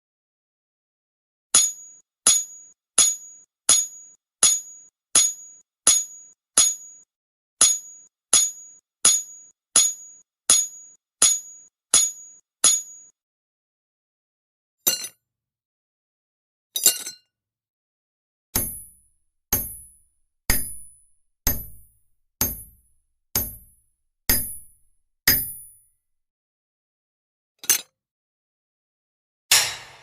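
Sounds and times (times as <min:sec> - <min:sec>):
rough clattering hits: 0:29.5 - 0:30.0.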